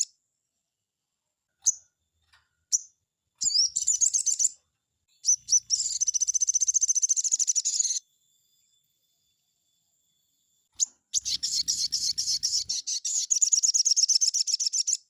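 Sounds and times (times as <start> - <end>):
bird chirping and trilling: 2.7 - 8.0, 10.8 - 15.0.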